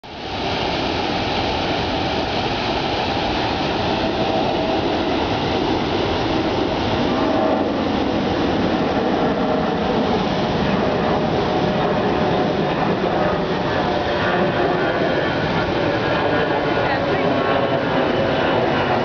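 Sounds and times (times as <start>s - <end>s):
waterfall rushing: 0.0s - 13.8s.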